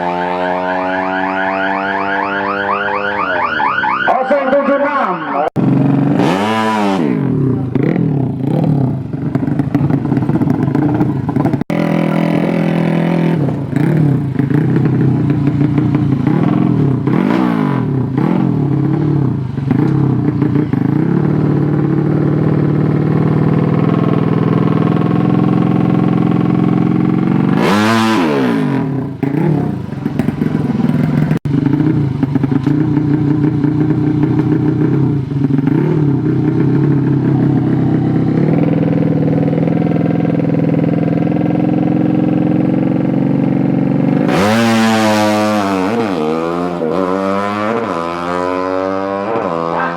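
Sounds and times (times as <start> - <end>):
motorcycle engines revving hard: 0.0 - 4.8, 5.5 - 49.9.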